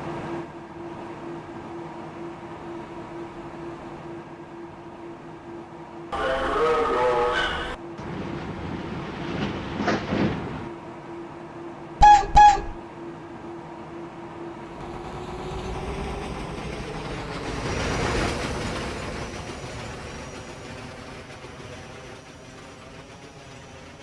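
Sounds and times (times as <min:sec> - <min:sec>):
train rumble and wheel noise: 0:00.0 - 0:24.0
train horn toots: 0:12.0 - 0:12.8.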